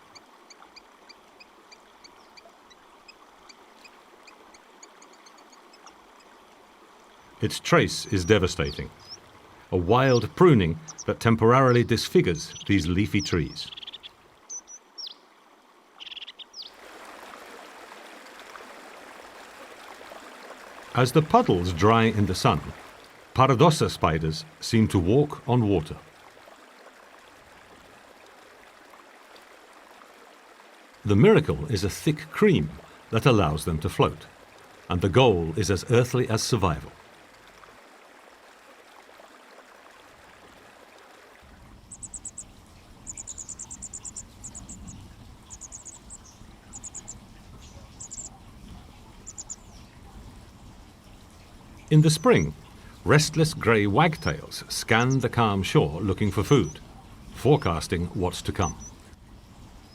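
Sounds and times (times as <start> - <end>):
running water: 0.0 - 59.9
bird chirping: 8.0 - 9.2, 9.8 - 15.2, 16.0 - 16.7, 41.9 - 48.4, 49.2 - 50.0, 53.2 - 55.4, 56.1 - 56.8, 58.4 - 59.0
low outdoor rumble: 41.4 - 59.9
cricket chirping: 41.8 - 47.2.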